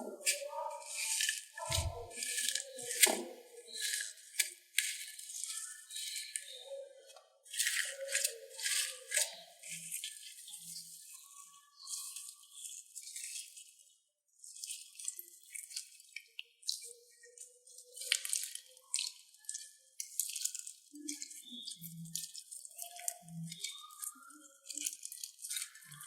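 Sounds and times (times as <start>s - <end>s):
slime squelches: 0.0s - 26.0s
slime crackling and clicking: 18.0s - 26.0s.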